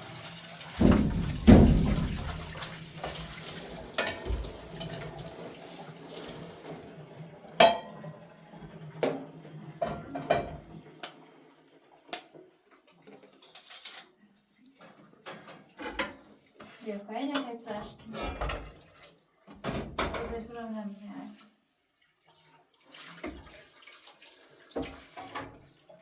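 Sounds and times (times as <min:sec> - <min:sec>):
water running: 0:00.0 - 0:12.4, 0:20.4 - 0:26.0
dishes and pots clattering: 0:00.8 - 0:05.4, 0:07.6 - 0:08.0, 0:09.8 - 0:10.7, 0:14.8 - 0:16.3, 0:18.1 - 0:18.9.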